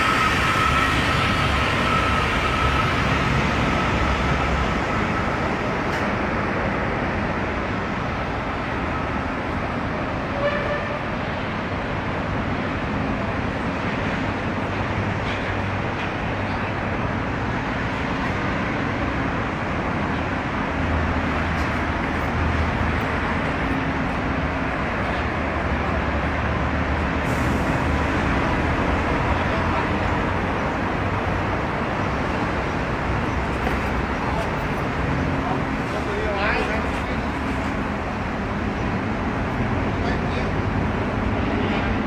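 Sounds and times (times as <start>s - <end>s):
machinery noise: 0.0s - 6.8s.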